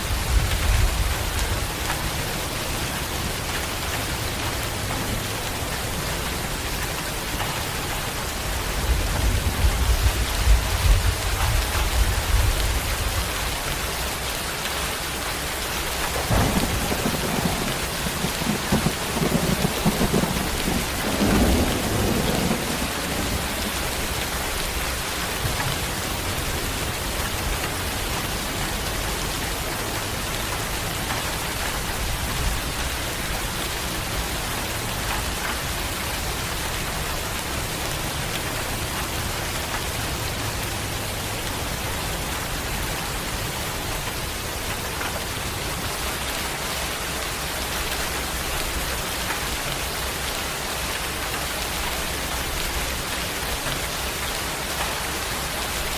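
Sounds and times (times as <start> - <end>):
thunder rumble: 0.0 - 13.4, 15.6 - 44.3
heavy rain: 0.0 - 55.9.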